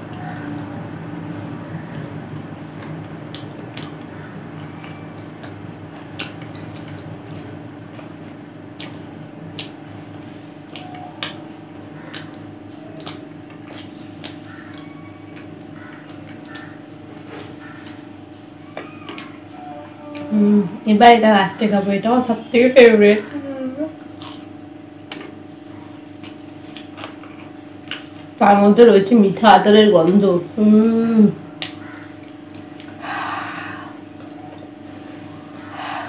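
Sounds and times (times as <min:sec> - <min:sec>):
person chewing food: 0:00.0 - 0:19.4, 0:24.0 - 0:28.4, 0:31.4 - 0:35.7
steady low hum: 0:00.0 - 0:36.0.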